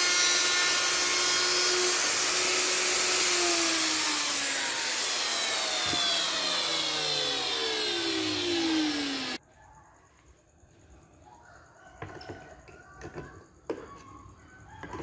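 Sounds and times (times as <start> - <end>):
carving machine motor whining: 0.0 - 9.4.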